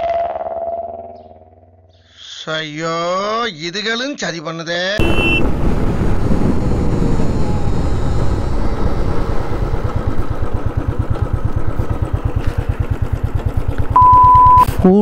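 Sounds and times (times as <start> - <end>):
wind rumble: 5.0 - 14.0
motorcycle engine running: 5.2 - 15.0.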